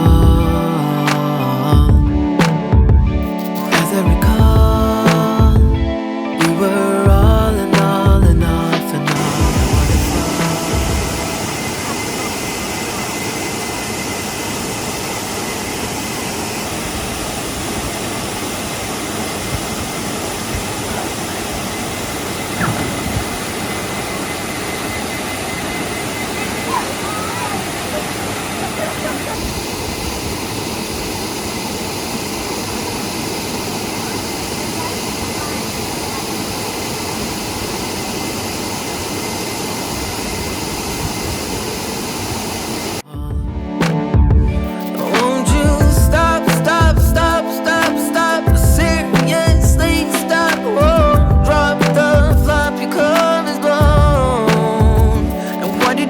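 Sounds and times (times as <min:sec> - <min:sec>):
waterfall roaring: 0:09.0 - 0:43.1.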